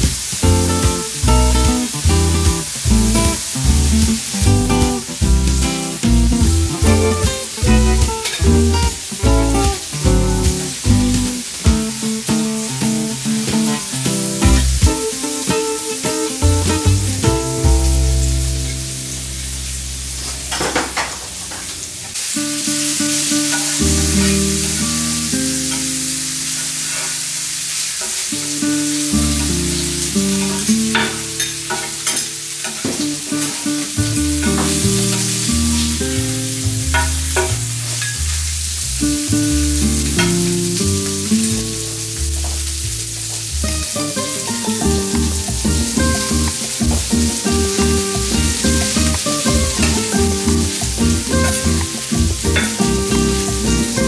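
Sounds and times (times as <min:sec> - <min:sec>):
background music with bass: 0:00.0 - 0:15.6, 0:16.4 - 0:20.5, 0:23.8 - 0:25.3, 0:34.0 - 0:54.0
food sizzling on hot plate: 0:00.0 - 0:54.0.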